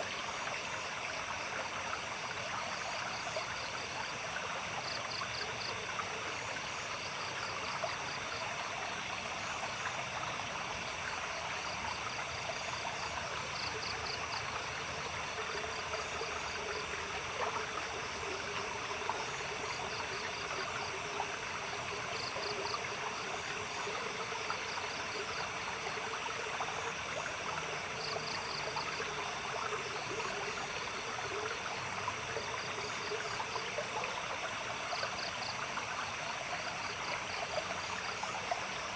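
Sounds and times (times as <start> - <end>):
stream water babbling: 0.0 - 38.9
insect chirping rapidly: 11.6 - 25.5.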